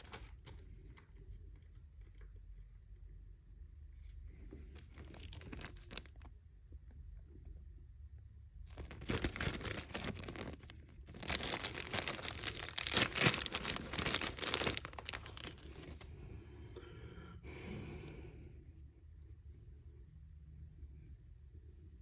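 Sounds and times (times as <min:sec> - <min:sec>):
dry crackling and rustling: 0:00.0 - 0:02.2, 0:04.5 - 0:06.3, 0:08.7 - 0:16.1.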